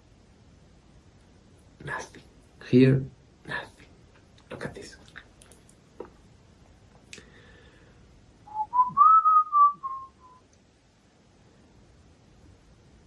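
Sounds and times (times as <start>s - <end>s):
person whistling: 8.5s - 10.4s.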